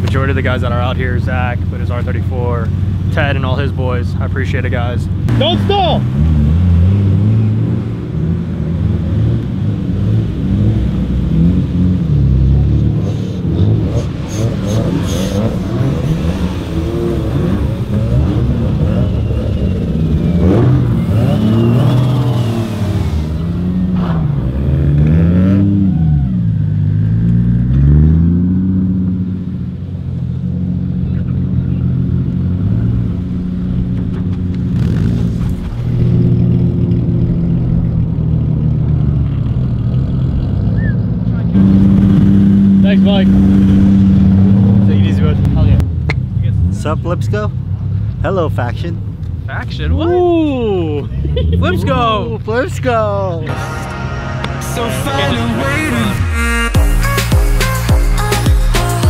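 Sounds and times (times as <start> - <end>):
car engines revving past: 5.1 - 50.0.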